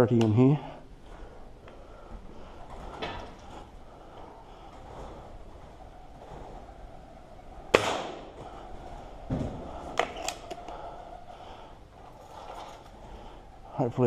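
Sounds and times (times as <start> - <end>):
air rifle shot: 7.7 - 8.3.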